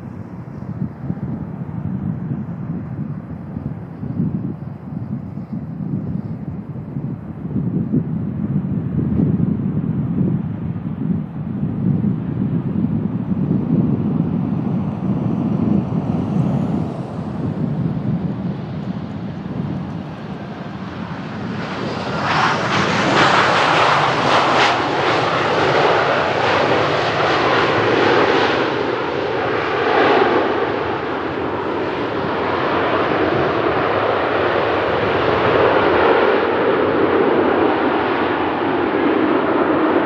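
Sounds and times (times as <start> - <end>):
jet engines roaring: 12.2 - 40.0.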